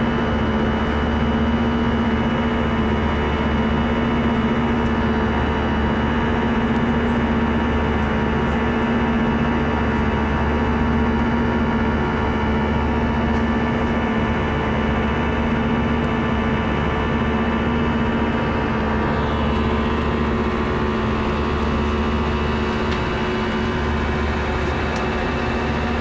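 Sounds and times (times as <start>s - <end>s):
jet engines droning in cabin: 0.0s - 26.0s.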